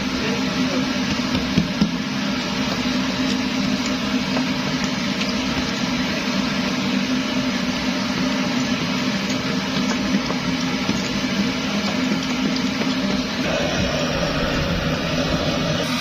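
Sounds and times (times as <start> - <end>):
pressure stove flame hissing: 0.0 - 16.0.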